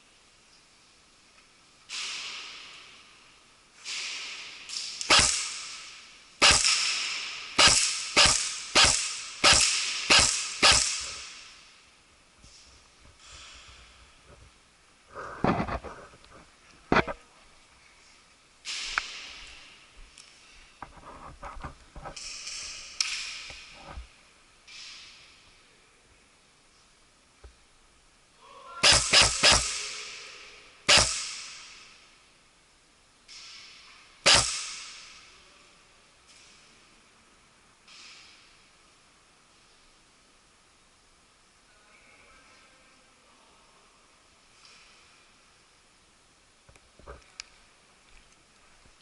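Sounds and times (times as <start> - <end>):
airsoft gun loud cracks: 1.9 - 2.8, 3.8 - 11.5, 28.8 - 30.0, 30.9 - 32.0, 34.2 - 35.2
airsoft gun hissing pops: 3.8 - 11.3, 28.8 - 29.8, 30.9 - 31.6, 34.2 - 35.0.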